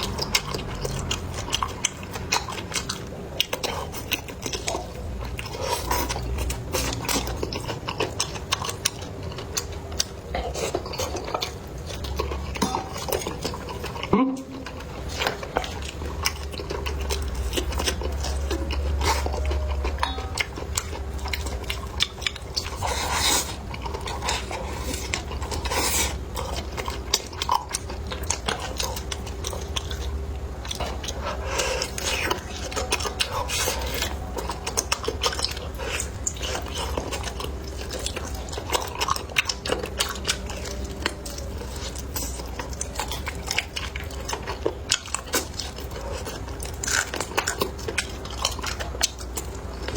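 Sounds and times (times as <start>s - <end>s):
chopsticks clicking on dishes: 0.0s - 22.8s
chewing: 0.0s - 49.9s
crunchy bites: 0.0s - 49.9s
low steady hum: 0.0s - 49.9s.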